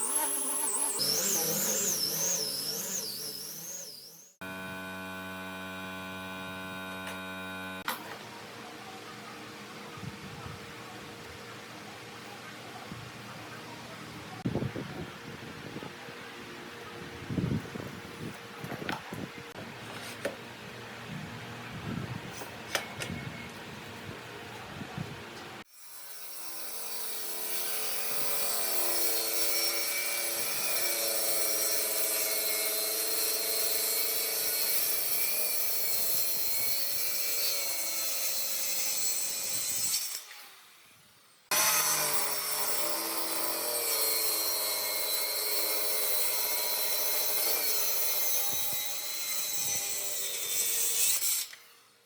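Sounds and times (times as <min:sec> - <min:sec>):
power tool sanding wood: 0:00.0 - 0:07.9.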